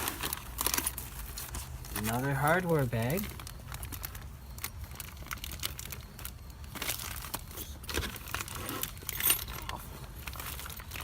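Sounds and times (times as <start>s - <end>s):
metal parts jingling in bag: 4.9s - 11.0s.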